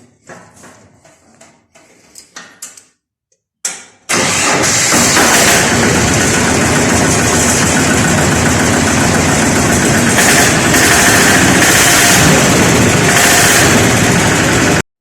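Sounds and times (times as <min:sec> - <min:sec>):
diesel tractor engine running: 0:04.1 - 0:14.8.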